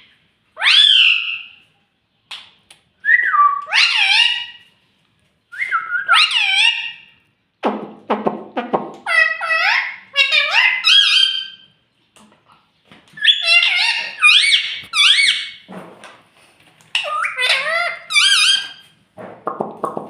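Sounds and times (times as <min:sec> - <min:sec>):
parakeet calling: 0:00.6 - 0:01.6, 0:03.7 - 0:04.7, 0:06.0 - 0:07.2, 0:09.0 - 0:11.8, 0:13.2 - 0:15.7, 0:16.9 - 0:18.9.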